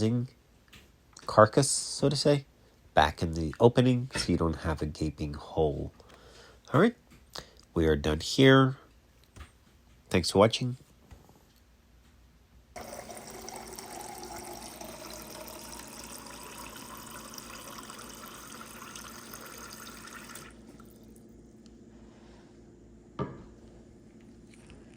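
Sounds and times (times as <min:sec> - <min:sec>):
water filling a container: 0:12.8 - 0:21.3.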